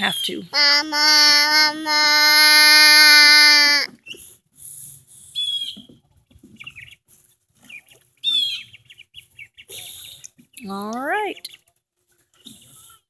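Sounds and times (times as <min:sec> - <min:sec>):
ducklings peeping and chirping: 0:06.6 - 0:07.0, 0:07.7 - 0:10.3.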